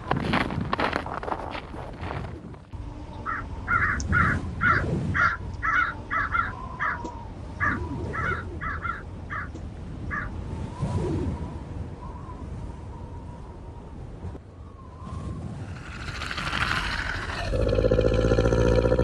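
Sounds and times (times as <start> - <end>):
crow cawing: 3.3 - 9.5.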